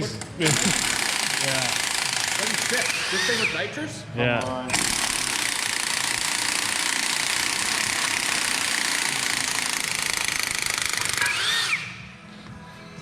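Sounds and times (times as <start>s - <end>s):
impact wrench hammering: 0.4s - 3.5s, 4.7s - 12.0s.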